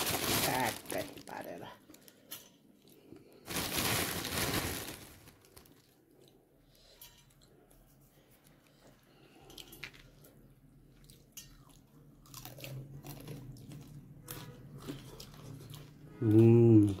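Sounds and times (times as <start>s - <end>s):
person chewing and smacking: 8.7s - 17.0s.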